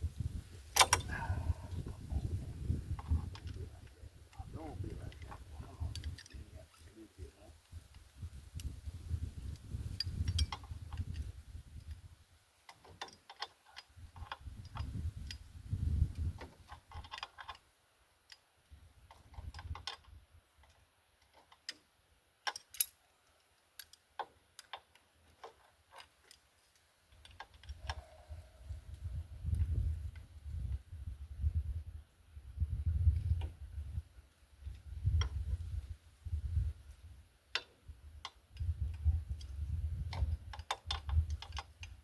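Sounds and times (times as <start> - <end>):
low rumbling handling noise: 0.0 - 12.0.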